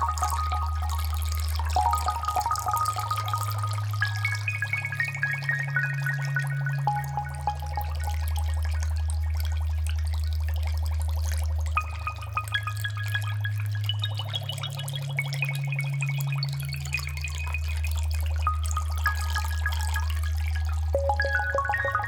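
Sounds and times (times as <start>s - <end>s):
high held synth notes: 0.0s - 5.1s, 6.7s - 9.0s, 21.0s - 22.0s
aquarium water bubbling: 0.0s - 22.0s.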